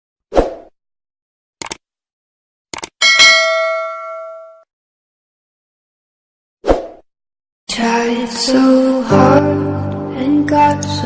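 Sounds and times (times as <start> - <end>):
quick clicks: 1.6 - 1.8, 2.7 - 3.0
bright bell ding: 3.0 - 4.6.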